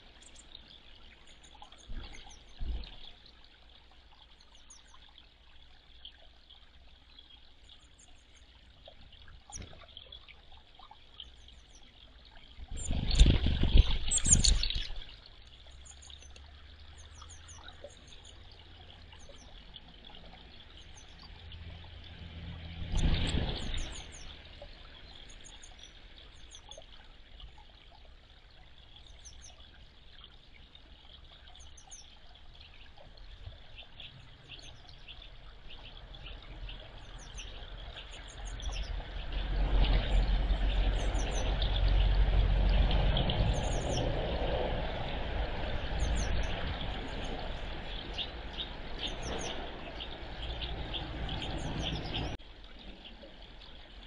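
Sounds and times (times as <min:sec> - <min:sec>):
small bird high calls: 0:14.0 - 0:15.0.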